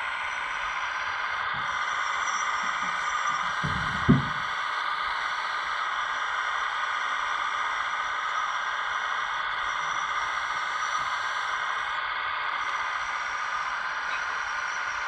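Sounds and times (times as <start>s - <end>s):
electric pump whining: 0.0s - 6.0s.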